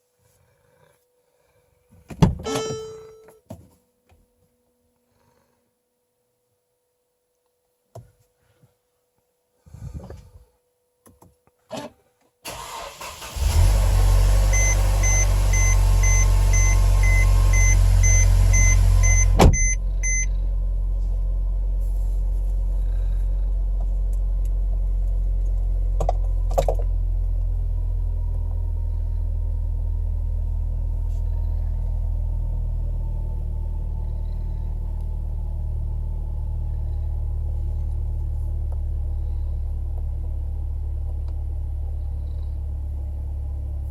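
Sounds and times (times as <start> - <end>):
short warning beeps: 2.4 - 3.4, 14.5 - 20.3
car engine cranking and idling: 12.5 - 43.9.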